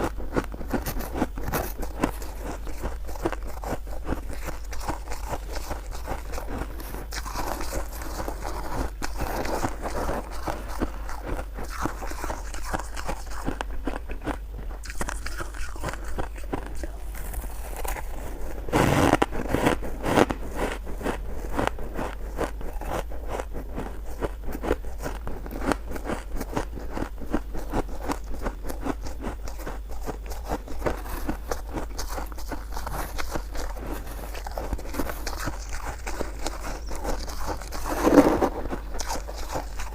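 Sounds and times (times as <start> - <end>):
crunching shaved ice: 0.4 - 39.9.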